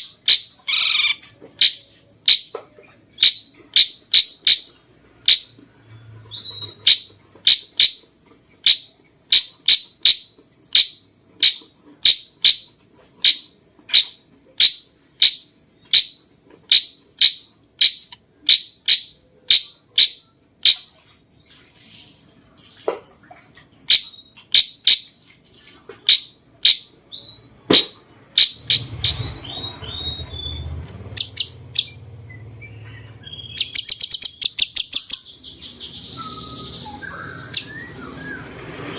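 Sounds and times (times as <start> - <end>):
songbird calling: 0.0 - 21.6, 22.6 - 25.2, 25.9 - 38.9
thin steady whistle: 36.2 - 38.6.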